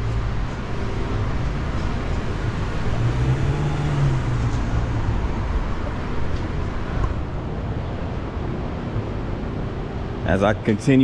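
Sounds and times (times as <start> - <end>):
vehicle engine passing: 0.0 - 7.4
traffic rumble: 0.0 - 11.0.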